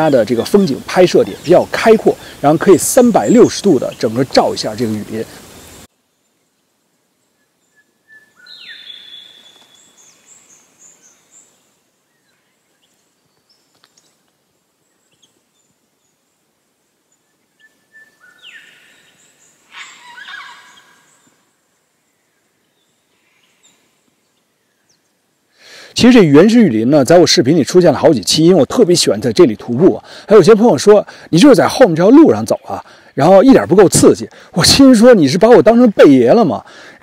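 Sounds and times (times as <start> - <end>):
faint background hiss: 0.0 - 37.0
forest birds calling: 0.0 - 37.0.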